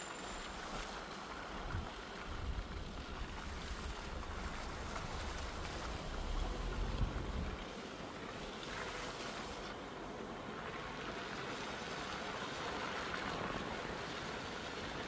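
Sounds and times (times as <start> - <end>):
rushing outdoor noise: 0.0 - 15.0.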